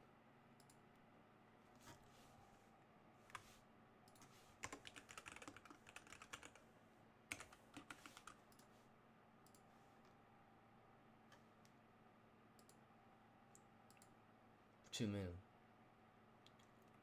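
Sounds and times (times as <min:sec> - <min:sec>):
faint keyboard typing: 0:00.5 - 0:01.0, 0:03.2 - 0:06.6, 0:07.3 - 0:08.8, 0:09.4 - 0:10.2, 0:12.5 - 0:12.8, 0:13.5 - 0:14.2, 0:16.4 - 0:17.0.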